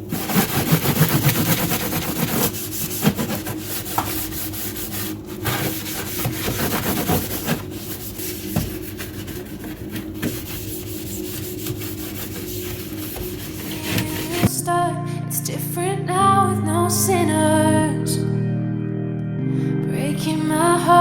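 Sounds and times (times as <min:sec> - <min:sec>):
scrubber scrubbing fridge: 0:00.0 - 0:14.5.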